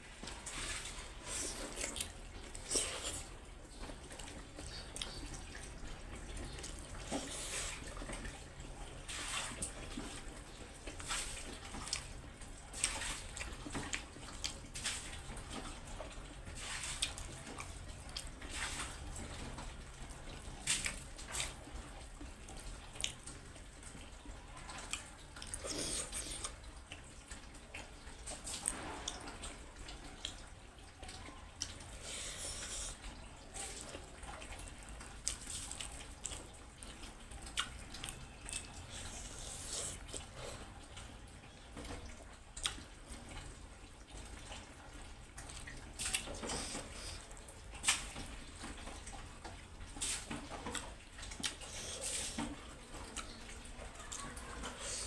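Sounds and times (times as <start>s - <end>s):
wet chewing and lip smacks: 1.2s - 5.8s, 10.9s - 16.1s, 20.6s - 23.6s, 24.8s - 30.5s, 34.3s - 41.1s, 41.8s - 55.0s.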